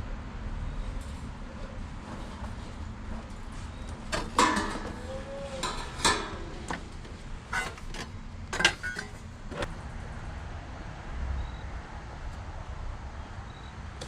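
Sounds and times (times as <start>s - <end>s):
sheet metal clanking and knocking: 4.0s - 9.2s.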